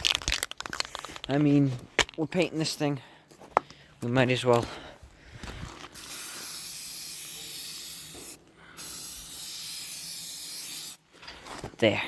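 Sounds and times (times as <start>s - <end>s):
spray paint can hissing: 6.0s - 11.0s.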